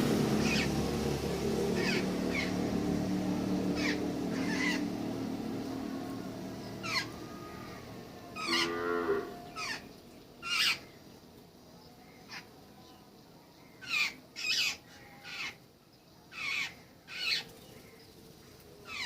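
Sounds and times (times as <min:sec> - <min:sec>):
birds calling: 0:00.0 - 0:11.2, 0:13.6 - 0:15.7, 0:16.3 - 0:19.0
low steady hum: 0:00.0 - 0:13.7.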